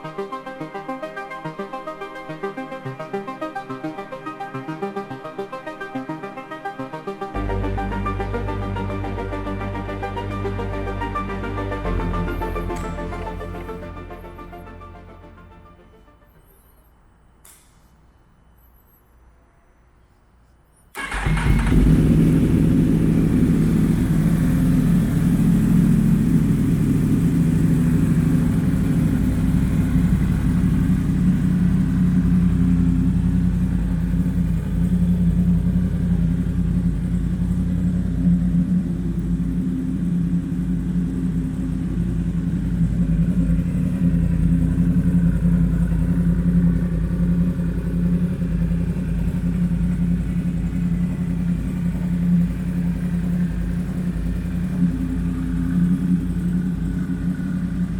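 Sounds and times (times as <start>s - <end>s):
motorcycle engine idling: 11.8s - 14.9s, 21.0s - 57.9s.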